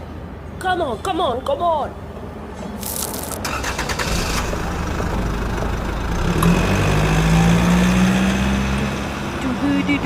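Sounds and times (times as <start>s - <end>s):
heavy vehicle engine running: 2.9s - 10.0s.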